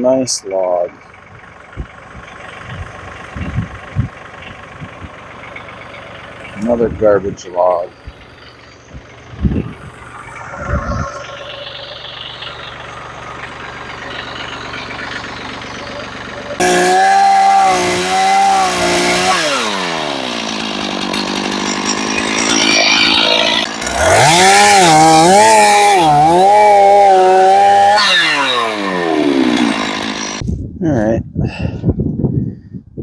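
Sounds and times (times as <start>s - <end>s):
engine idling: 0.0s - 30.5s
chainsaw cutting log: 7.8s - 30.5s.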